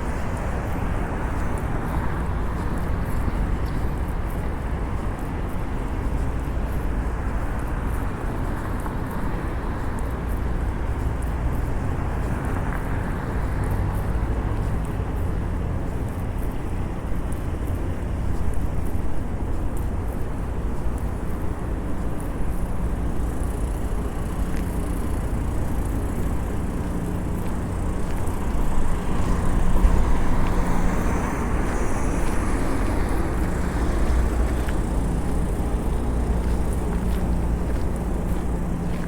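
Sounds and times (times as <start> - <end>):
traffic rumble of engines and tyres: 0.0 - 39.0
vehicle passing: 27.4 - 39.0.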